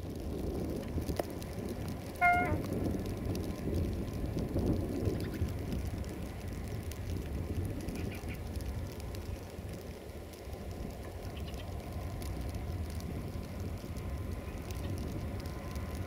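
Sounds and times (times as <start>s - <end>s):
train rumbling and rattling: 0.0s - 6.6s.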